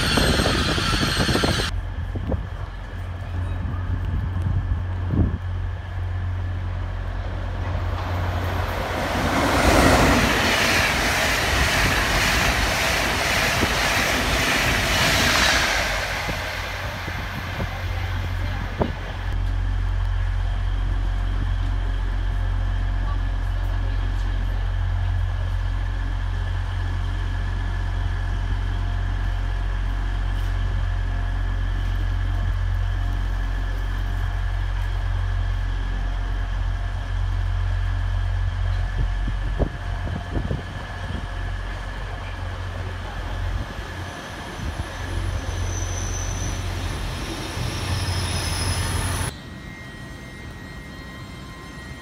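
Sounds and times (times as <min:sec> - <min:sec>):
train brakes squealing: 0:00.0 - 0:01.7, 0:43.6 - 0:52.0
diesel train humming: 0:00.0 - 0:52.0.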